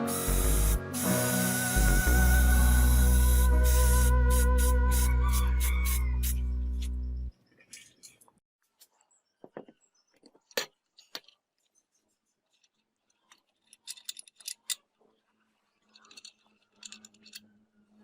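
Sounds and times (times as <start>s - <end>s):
small metallic clicks and clinks: 12.4s - 15.0s, 15.8s - 17.6s.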